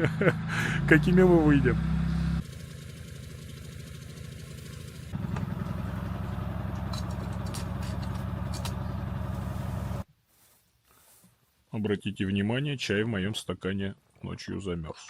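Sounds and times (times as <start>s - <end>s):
small engine idling: 0.5s - 10.0s.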